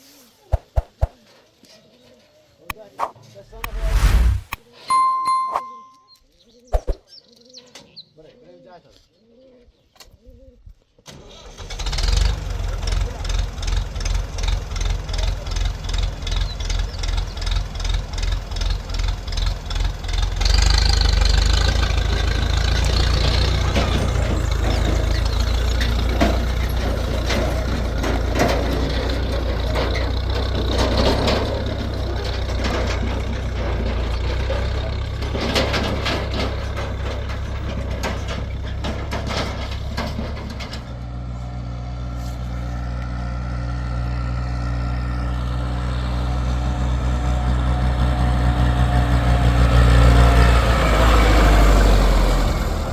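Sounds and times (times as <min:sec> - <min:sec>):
vehicle engine running: 0:12.2 - 0:39.7.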